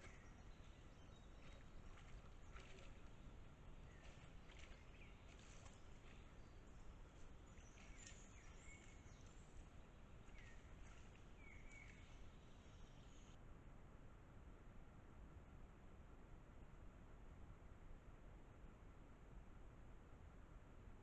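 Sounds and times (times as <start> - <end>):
faint bird chirps: 0.0 - 13.4
steady low hiss: 0.0 - 21.0.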